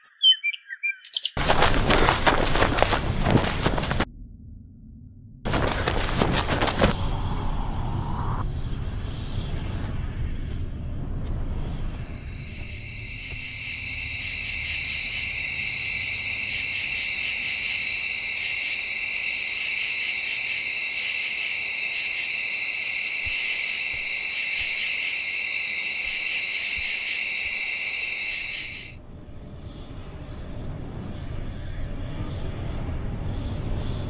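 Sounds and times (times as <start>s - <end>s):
insects chirping rhythmically: 1.4s - 4.0s, 12.0s - 29.0s
insects buzzing: 1.4s - 4.1s, 5.5s - 29.0s.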